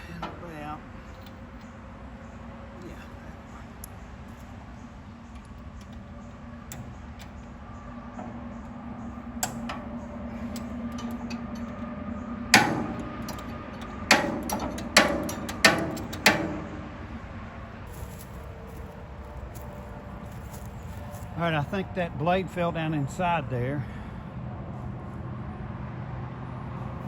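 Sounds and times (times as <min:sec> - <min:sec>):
metal clanking on steel housing: 0:00.0 - 0:18.1.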